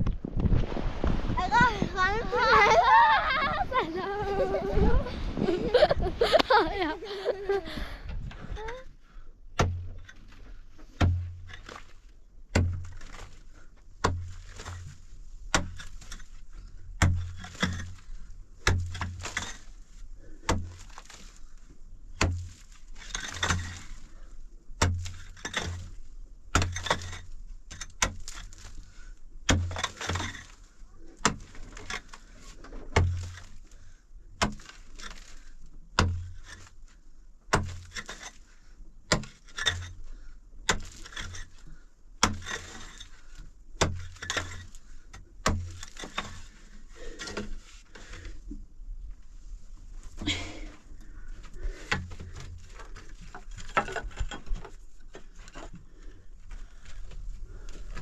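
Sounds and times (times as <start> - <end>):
hand tool striking with dull thuds: 9.6 - 11.8, 12.5 - 13.1, 14.0 - 16.2, 17.0 - 17.9, 18.6 - 19.6, 22.2 - 23.8, 24.8 - 25.9, 26.5 - 28.4, 35.9 - 36.6, 37.5 - 38.3, 39.1 - 39.9, 42.2 - 43.0, 43.8 - 46.4.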